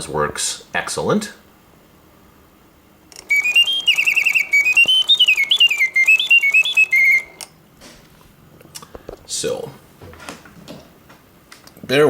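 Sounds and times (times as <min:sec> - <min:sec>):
mechanical bird whistling: 0:03.2 - 0:07.4.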